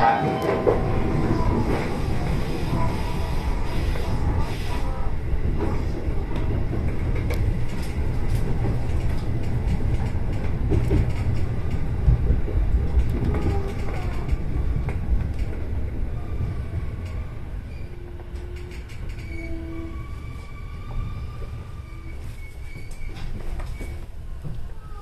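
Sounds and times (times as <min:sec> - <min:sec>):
train low rumble: 0:00.0 - 0:25.0
wheels clicking over rail joints: 0:06.3 - 0:15.8.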